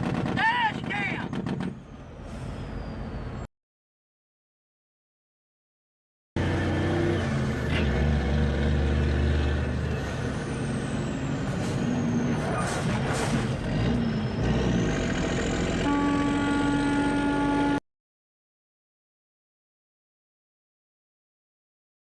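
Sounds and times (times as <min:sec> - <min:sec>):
road noise: 0:00.0 - 0:03.5, 0:06.4 - 0:17.8.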